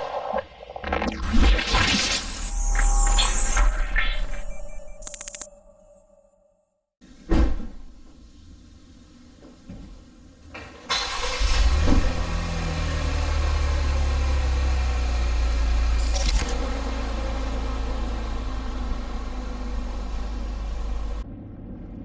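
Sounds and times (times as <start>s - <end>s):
thump: 7.3s - 8.1s
car engine rumbling: 16.6s - 22.0s.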